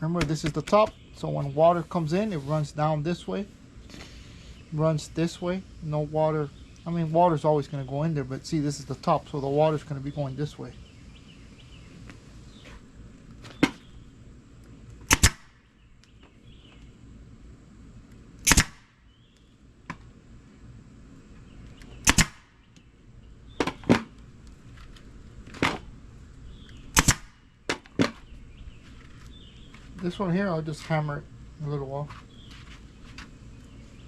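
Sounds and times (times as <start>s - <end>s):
staple gun firing: 15.1s - 15.5s, 18.4s - 18.8s, 22.0s - 22.4s, 27.0s - 27.3s.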